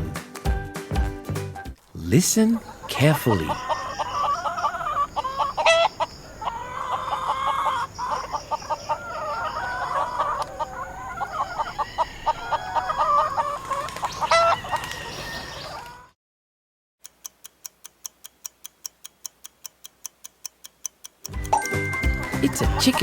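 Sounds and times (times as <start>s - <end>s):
chickens clucking: 2.0s - 16.2s, 22.2s - 23.0s
loud sharp chicken call: 2.6s - 16.1s.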